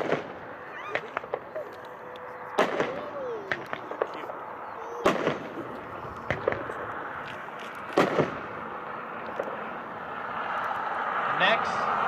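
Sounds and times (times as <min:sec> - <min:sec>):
firework bangs with echo: 0:00.0 - 0:01.5, 0:02.6 - 0:04.1, 0:05.0 - 0:05.7, 0:07.9 - 0:08.7
faint firework pops: 0:05.0 - 0:05.6, 0:07.9 - 0:08.4.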